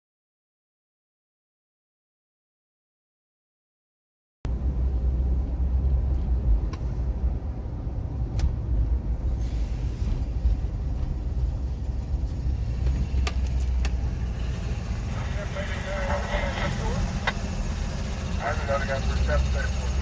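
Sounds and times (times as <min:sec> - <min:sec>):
train rumbling by: 0:04.5 - 0:20.0.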